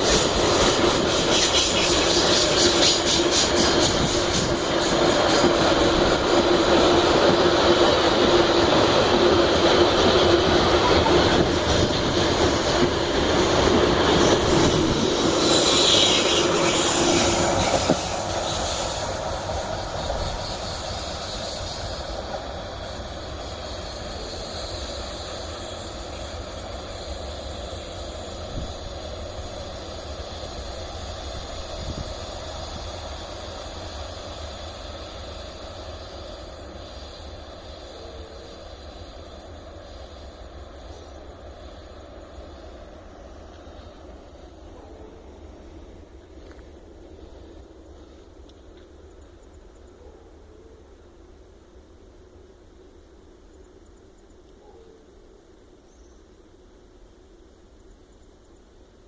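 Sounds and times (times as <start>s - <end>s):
steel wheels squealing: 0.0s - 28.7s.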